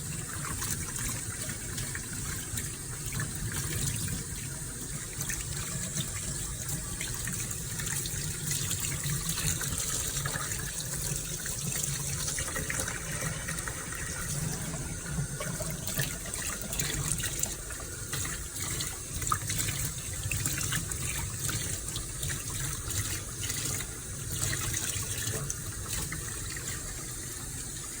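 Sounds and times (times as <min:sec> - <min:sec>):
tap water running: 0:00.0 - 0:28.0.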